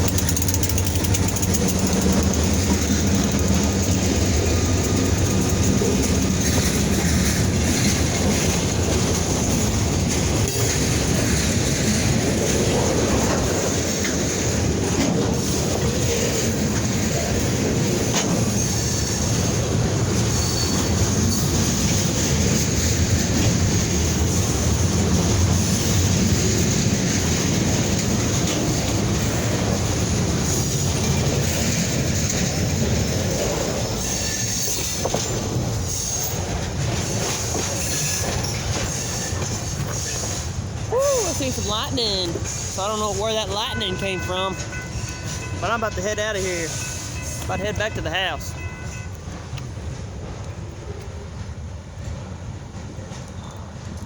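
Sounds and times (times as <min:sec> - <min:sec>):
train wheels clacking on rails: 0:00.0 - 0:54.0
high wheel squeal: 0:18.3 - 0:22.7, 0:27.9 - 0:49.2.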